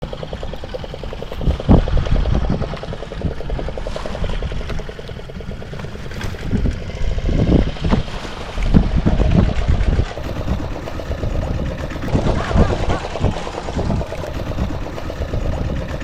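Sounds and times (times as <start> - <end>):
boat engine rumbling: 0.0 - 16.0
wind buffeting microphone: 0.0 - 16.0.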